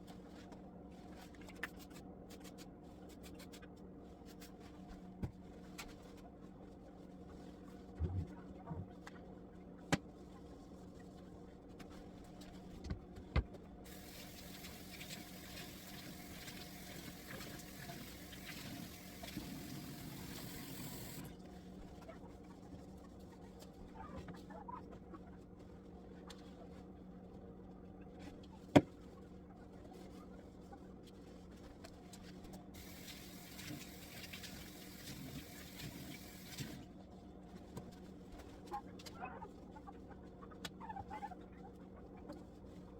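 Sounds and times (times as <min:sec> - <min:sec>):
low steady hum: 0:00.0 - 0:42.9
tap water running into sink: 0:13.9 - 0:21.3, 0:32.8 - 0:36.8.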